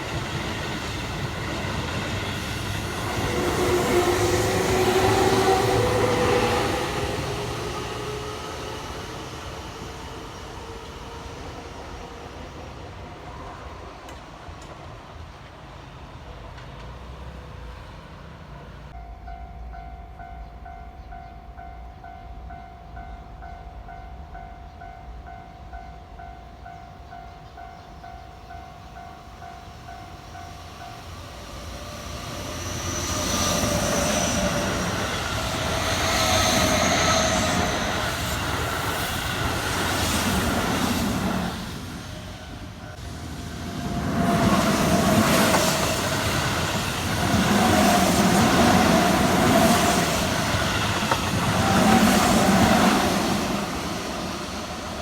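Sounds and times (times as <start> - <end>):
train wheels rumbling and squealing: 0.0 - 19.0, 19.7 - 55.0.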